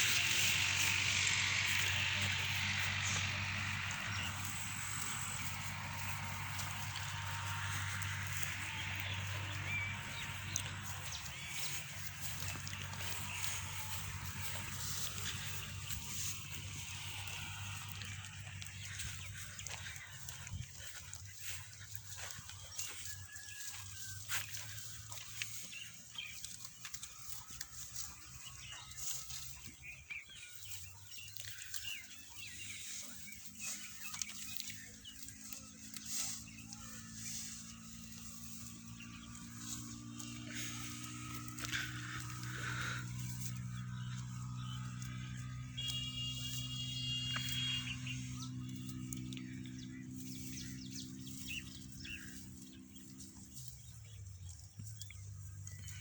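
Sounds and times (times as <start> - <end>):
steady low hum: 0.0 - 22.6, 31.6 - 56.0
birds chirping: 0.0 - 56.0.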